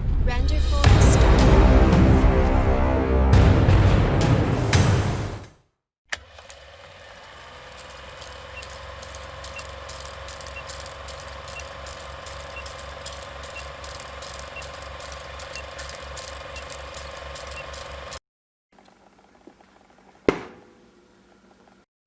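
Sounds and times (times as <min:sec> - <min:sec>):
small mechanism humming: 0:06.2 - 0:18.2
rapid irregular clicking: 0:07.4 - 0:18.2.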